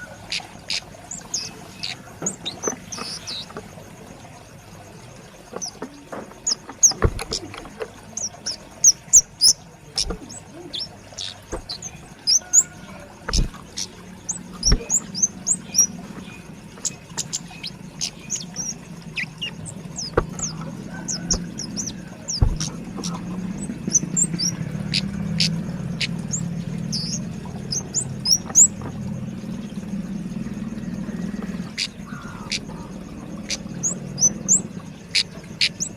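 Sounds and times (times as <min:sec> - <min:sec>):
bird chirping: 0:00.0 - 0:03.6, 0:05.5 - 0:35.9
low steady hum: 0:00.0 - 0:35.9
bird clicks: 0:05.5 - 0:08.6, 0:10.0 - 0:12.5, 0:13.2 - 0:15.9, 0:19.4 - 0:23.2.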